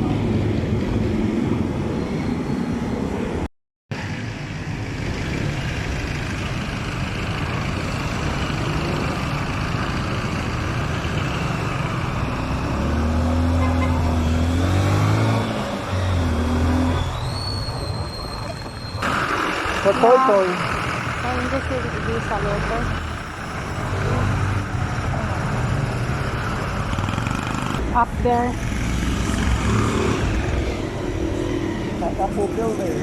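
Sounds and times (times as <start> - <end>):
wind and road rush: 0.0 - 33.0
motorcycle engine: 19.0 - 33.0.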